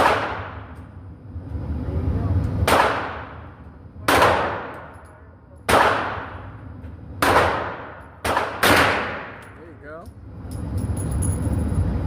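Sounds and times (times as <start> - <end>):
submachine gun single shots: 2.6 - 3.4, 4.1 - 4.9, 5.7 - 6.4, 7.2 - 9.4.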